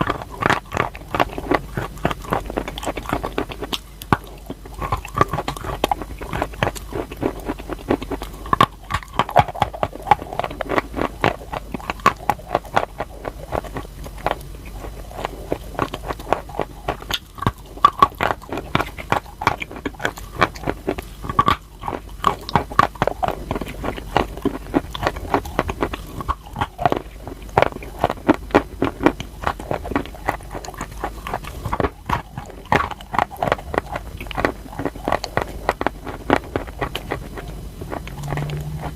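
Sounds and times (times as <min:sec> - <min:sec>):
chalk being chewed crunchily: 0:00.0 - 0:38.9.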